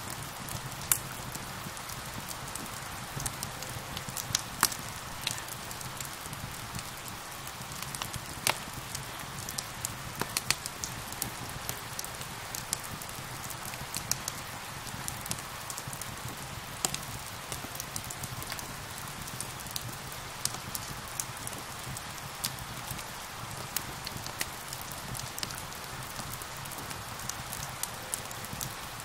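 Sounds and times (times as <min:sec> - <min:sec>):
fireplace fire crackling: 0:00.0 - 0:29.0
steady rain: 0:00.0 - 0:29.0.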